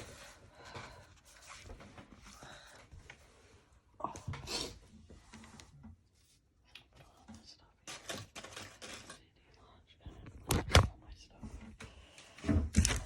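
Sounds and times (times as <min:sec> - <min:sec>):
paper rustling and handling: 0:07.8 - 0:09.3.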